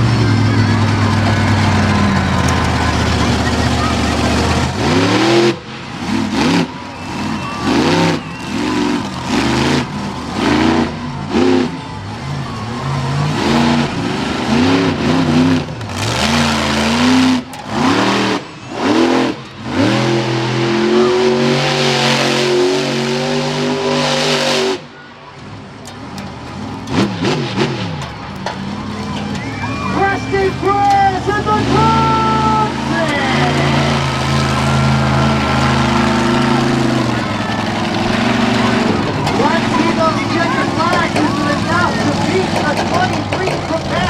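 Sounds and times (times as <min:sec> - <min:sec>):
truck engine revving: 0:00.0 - 0:44.0.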